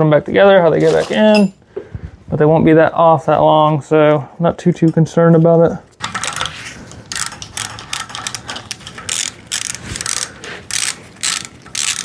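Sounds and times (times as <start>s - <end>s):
hand ratchet clicking: 7.1s - 12.0s.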